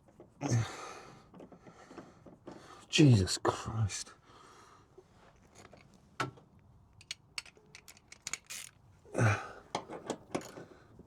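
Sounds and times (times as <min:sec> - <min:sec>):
ratchet clicking: 0:07.0 - 0:08.8.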